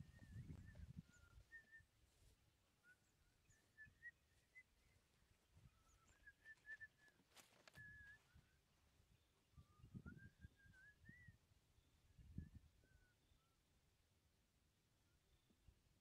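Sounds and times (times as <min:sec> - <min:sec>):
faint bird chirps: 0:00.0 - 0:13.8
soft footfalls in grass: 0:02.0 - 0:02.8, 0:06.4 - 0:08.4.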